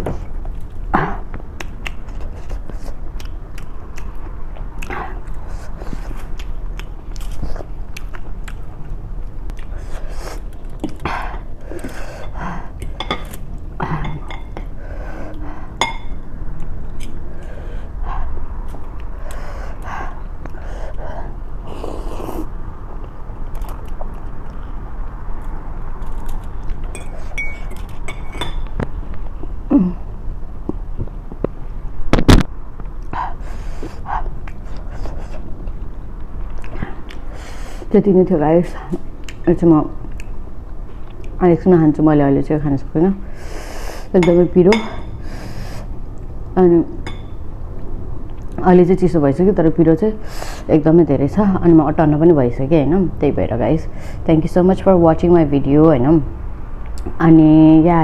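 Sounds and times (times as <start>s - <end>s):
steady low hum: 0.0s - 58.0s
chewing and mouth sounds: 0.3s - 13.4s, 21.6s - 29.4s, 33.8s - 37.4s, 40.0s - 41.4s
spoon clinking against bowl: 14.0s - 14.6s, 15.8s - 16.2s, 26.9s - 28.7s, 44.2s - 45.2s, 47.0s - 47.4s.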